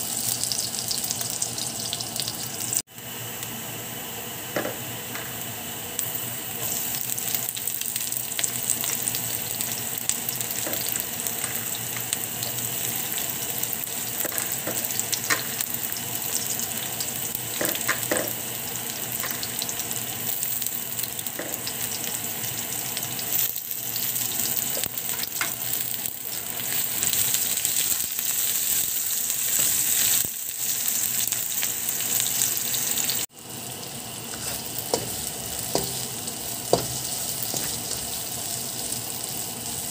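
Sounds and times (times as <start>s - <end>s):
food sizzling in hot oil: 0.0s - 39.9s
spatula stirring in pan: 34.3s - 36.1s.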